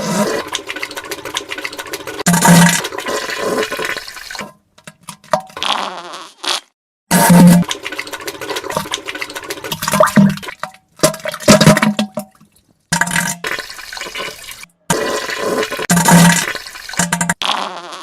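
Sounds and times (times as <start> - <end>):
fart sound effects: 5.6 - 7.6, 14.9 - 18.0.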